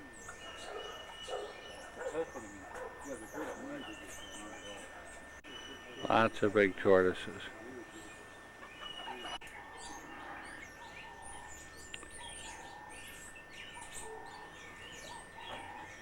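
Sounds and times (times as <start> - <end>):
birds chirping and calling: 0.0 - 16.0.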